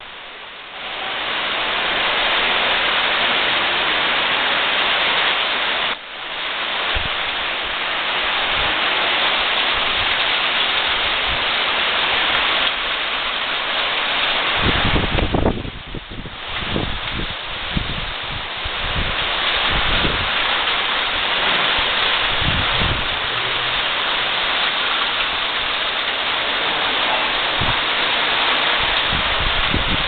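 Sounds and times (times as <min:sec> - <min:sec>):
heavy rain pouring: 0:00.0 - 0:30.0
wind gusts buffeting microphone: 0:14.4 - 0:20.6, 0:21.2 - 0:24.5, 0:27.3 - 0:30.0.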